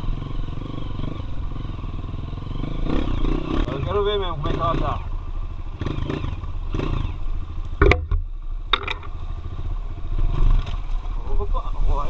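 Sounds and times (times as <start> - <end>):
motorcycle engine low rumble: 0.0 - 12.0
sharp knocks: 7.8 - 9.1.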